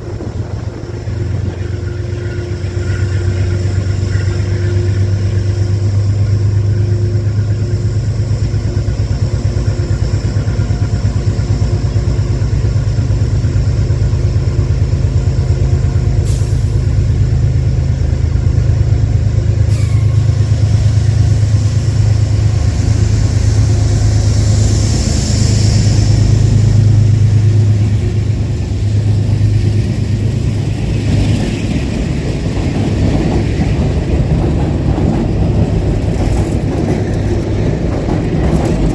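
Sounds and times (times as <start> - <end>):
train low hum: 0.0 - 38.9
high hiss: 19.6 - 31.1.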